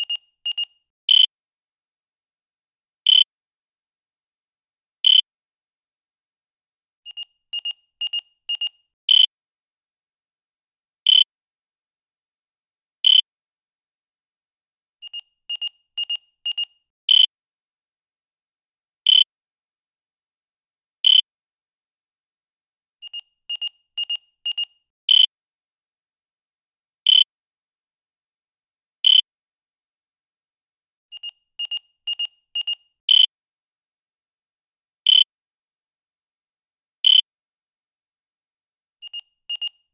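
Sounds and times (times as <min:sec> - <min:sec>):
high-pitched electronic beeps: 0:31.1 - 0:32.8.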